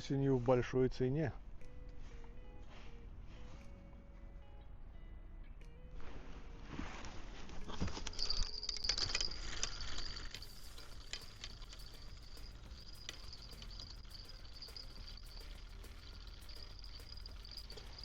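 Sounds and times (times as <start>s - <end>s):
rustling and handling noise: 6.0s - 18.0s
spinning reel winding: 8.0s - 18.0s.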